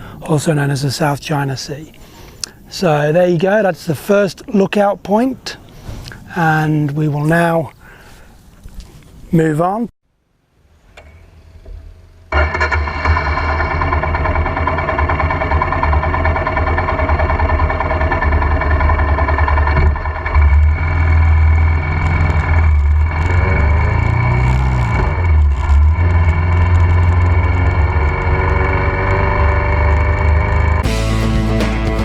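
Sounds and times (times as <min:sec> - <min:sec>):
motorbike engine running: 0:13.6 - 0:32.0.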